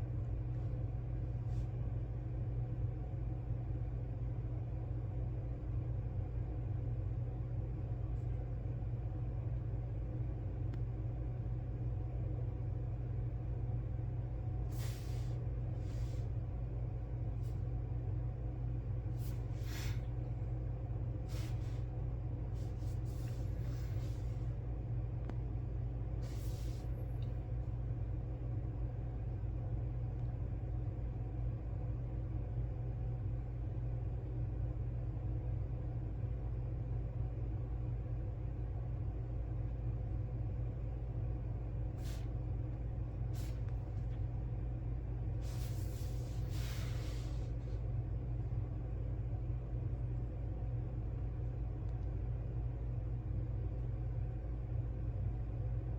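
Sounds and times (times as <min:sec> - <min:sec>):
steady low room hum: 0:00.0 - 0:55.9
soft hisses: 0:45.4 - 0:47.7
soft rustles: 0:45.4 - 0:47.8.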